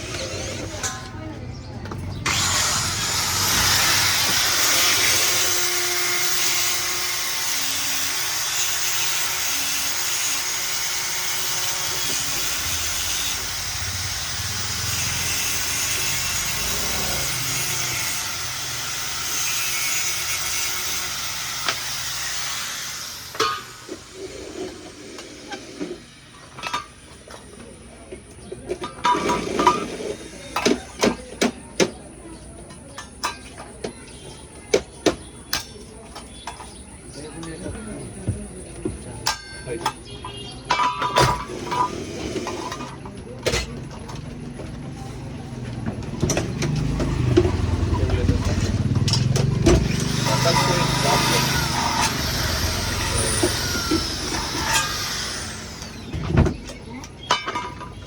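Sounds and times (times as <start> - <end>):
power tool hissing: 2.2 - 26.2, 49.8 - 56.3.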